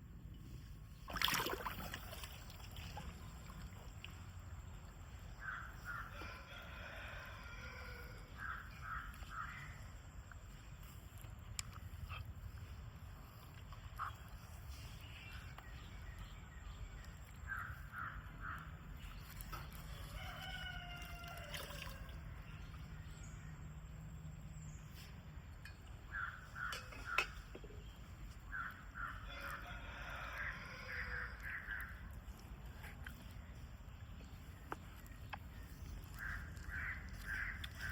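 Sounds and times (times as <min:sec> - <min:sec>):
rooster crowing: 0:06.1 - 0:08.3, 0:20.0 - 0:22.1, 0:29.3 - 0:31.3.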